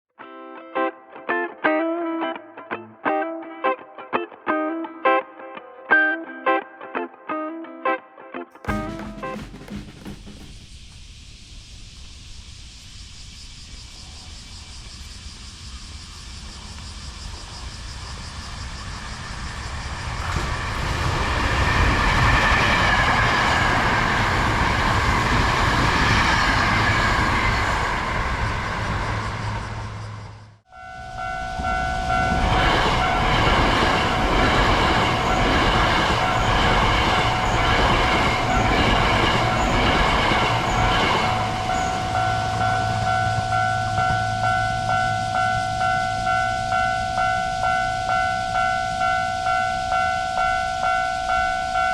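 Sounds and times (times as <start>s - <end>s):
electric train running past: 8.6s - 51.9s
rail-joint clicks: 20.0s - 26.6s
two-tone ringing: 30.7s - 51.9s.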